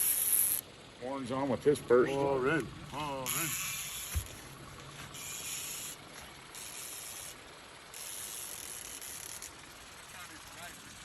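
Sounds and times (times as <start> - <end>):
fishing reel gears whirring: 0.0 - 0.7, 3.0 - 11.0.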